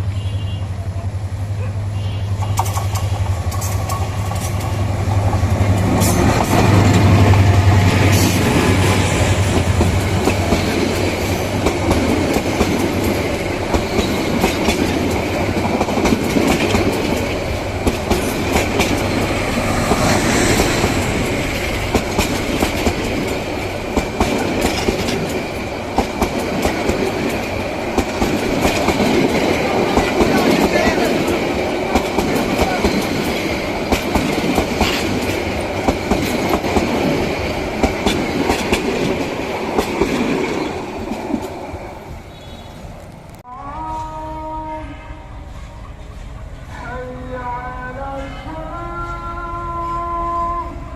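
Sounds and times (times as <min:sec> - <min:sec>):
diesel locomotive engine drone: 0:00.0 - 0:50.9
train wheels clattering over rail joints: 0:02.4 - 0:42.1.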